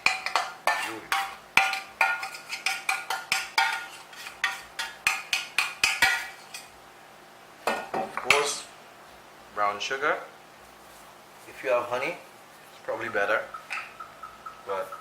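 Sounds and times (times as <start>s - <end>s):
utensil scraping a container: 0.6s - 4.8s.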